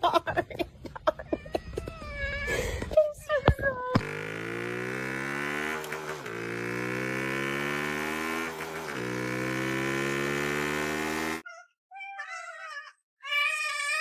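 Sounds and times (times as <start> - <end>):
small electric motor buzzing: 4.0 - 11.4.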